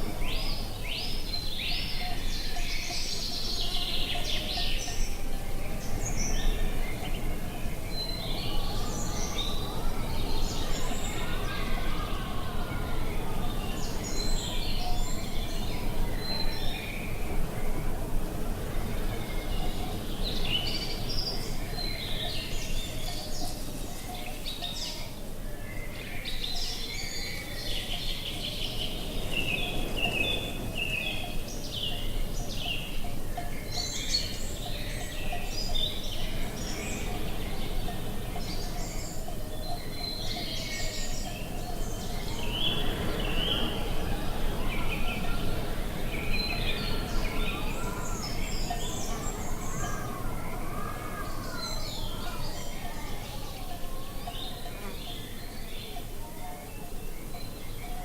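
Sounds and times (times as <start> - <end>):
birds chirping and singing: 0.0 - 58.0
low background noise: 0.0 - 58.0.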